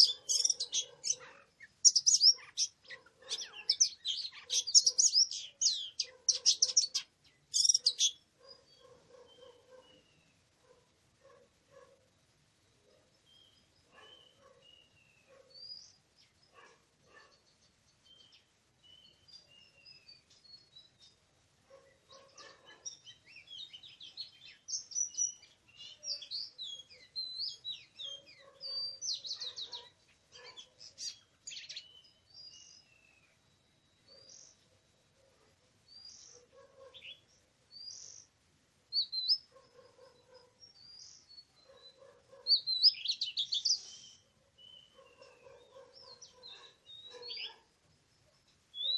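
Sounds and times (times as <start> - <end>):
bird singing whistles and trills: 0.0 - 8.6, 38.9 - 39.5, 40.7 - 47.6.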